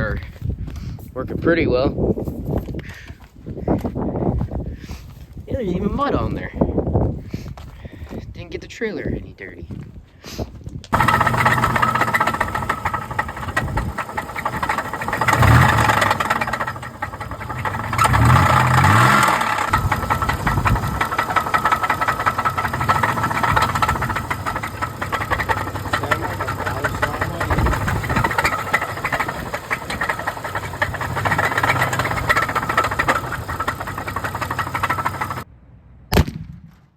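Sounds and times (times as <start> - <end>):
vehicle engine revving: 11.0 - 35.4.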